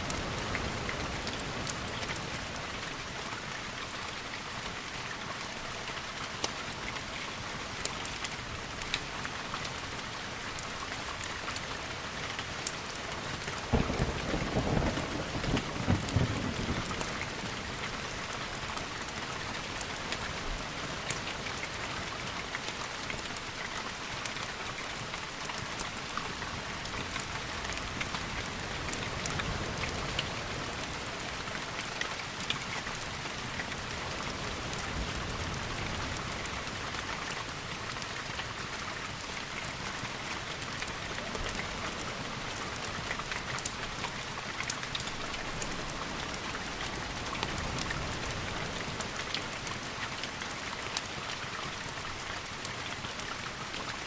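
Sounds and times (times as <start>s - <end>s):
steady rain with drop ticks: 0.0s - 54.0s
thunder rumble: 13.7s - 17.8s.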